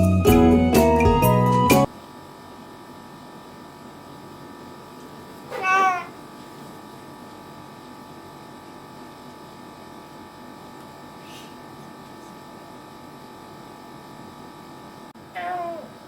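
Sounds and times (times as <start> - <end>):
faint background hum: 1.8 - 16.0
cat meowing: 5.5 - 6.2, 15.3 - 16.0.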